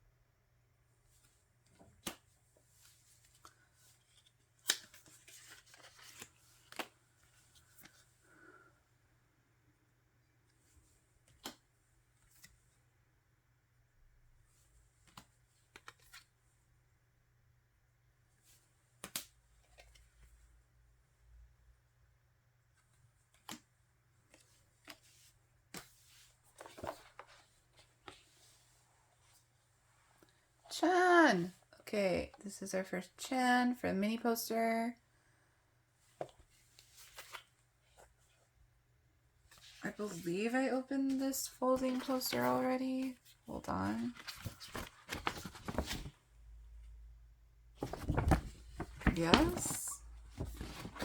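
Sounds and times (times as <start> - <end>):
paper rustle: 1.2 - 8.1, 24.2 - 29.4, 41.1 - 46.2, 47.8 - 51.0
paper and plastic rustling: 41.1 - 46.2, 47.8 - 51.0.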